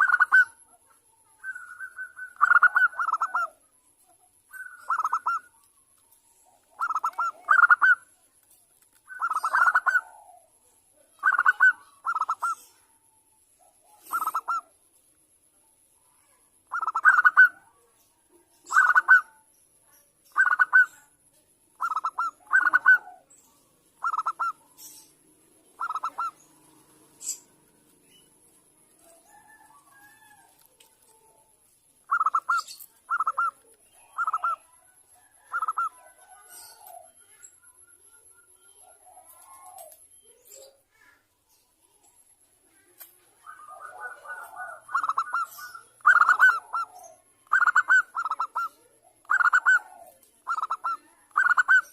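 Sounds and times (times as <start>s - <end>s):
dove trilling coos: 0.0s - 3.7s, 4.5s - 5.7s, 6.3s - 8.1s, 9.1s - 13.1s, 13.7s - 14.8s, 16.6s - 17.8s, 18.6s - 19.4s, 20.3s - 21.1s, 21.7s - 23.4s, 24.0s - 28.2s, 28.8s - 30.7s, 32.0s - 38.0s, 38.7s - 40.8s, 43.3s - 51.9s.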